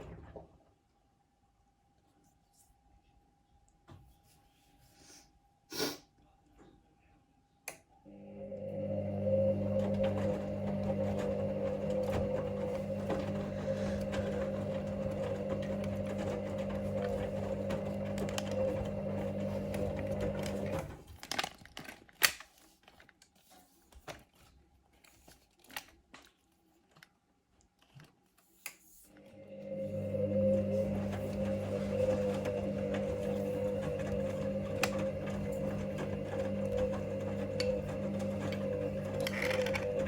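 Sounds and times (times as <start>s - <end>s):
washing machine motor humming: 8.1s - 21.2s, 29.2s - 40.0s.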